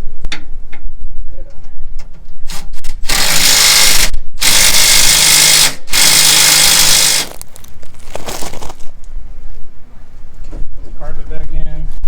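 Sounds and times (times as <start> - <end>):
power drill running: 2.5 - 7.7.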